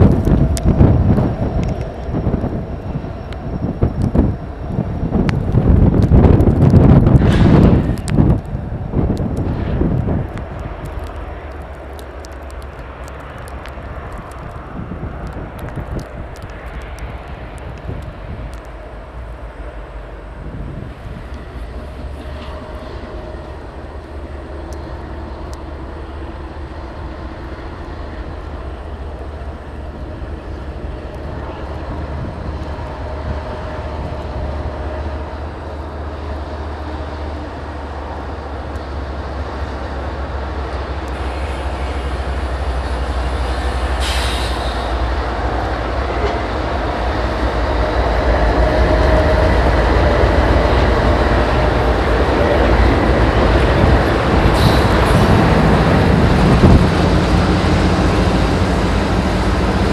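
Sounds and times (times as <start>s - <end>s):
diesel locomotive rumble: 0.0s - 59.9s
train cars rolling: 0.0s - 59.9s.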